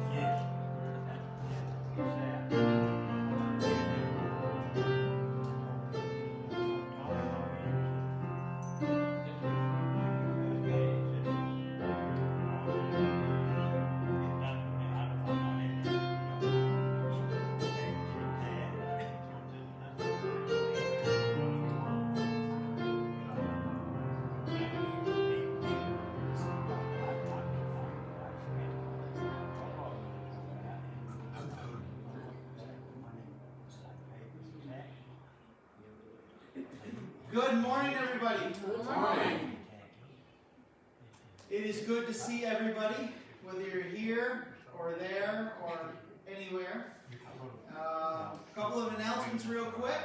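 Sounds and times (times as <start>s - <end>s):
slow keyboard music: 0.0s - 35.5s.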